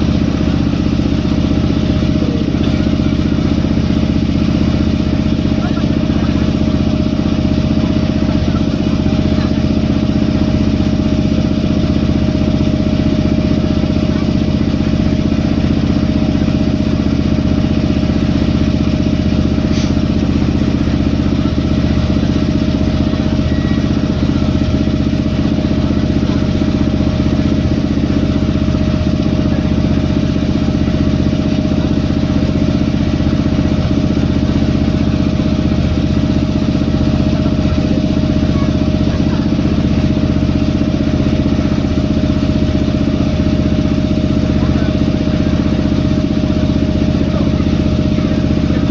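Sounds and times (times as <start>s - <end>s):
boat engine running: 0.0s - 48.9s.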